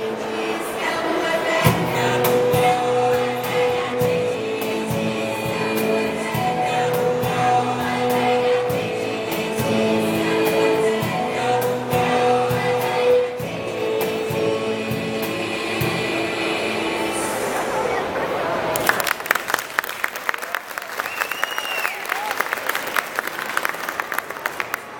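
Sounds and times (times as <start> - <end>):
choir singing: 0.0 - 18.6.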